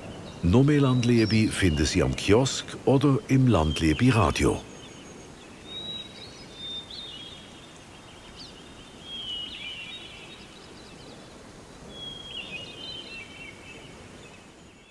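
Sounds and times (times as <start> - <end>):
outdoor background hiss: 0.0 - 14.9
songbirds chirping and warbling: 0.0 - 14.9.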